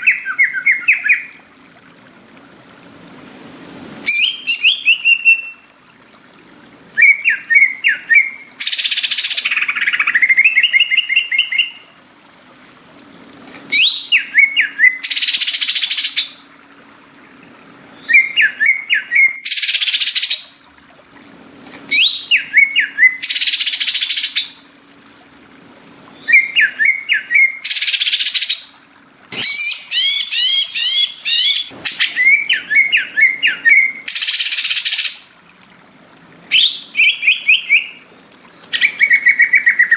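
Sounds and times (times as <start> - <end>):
bird singing whistled notes: 4.1 - 5.7, 7.0 - 9.2, 13.7 - 16.3, 18.0 - 20.4, 36.5 - 38.0.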